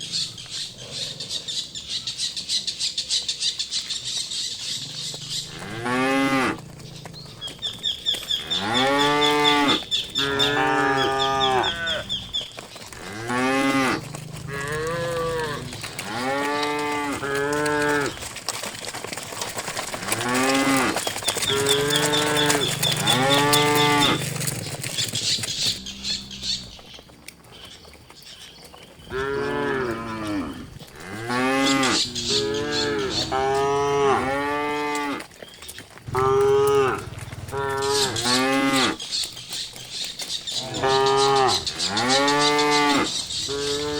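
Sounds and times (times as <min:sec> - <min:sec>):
cattle mooing: 0:05.0 - 0:18.2, 0:19.9 - 0:26.8, 0:29.1 - 0:35.2, 0:36.1 - 0:39.0, 0:40.5 - 0:43.9.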